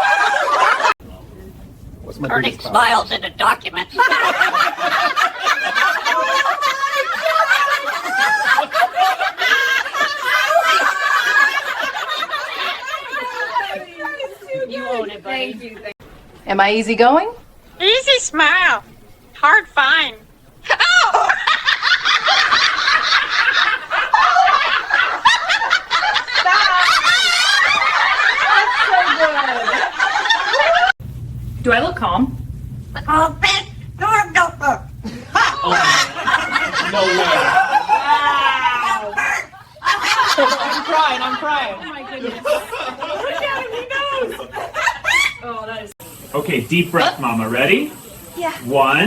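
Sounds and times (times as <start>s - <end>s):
people laughing together: 0.0s - 1.0s, 3.8s - 15.8s, 20.6s - 31.0s, 34.6s - 45.9s.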